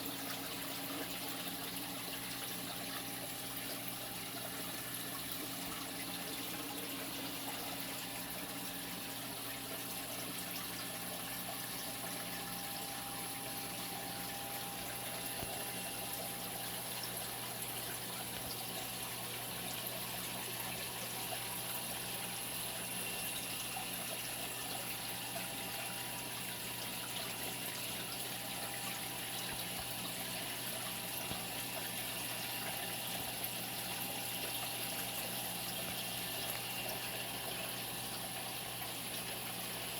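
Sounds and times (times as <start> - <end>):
low electrical hum: 0.0 - 39.9
running water: 0.0 - 39.9.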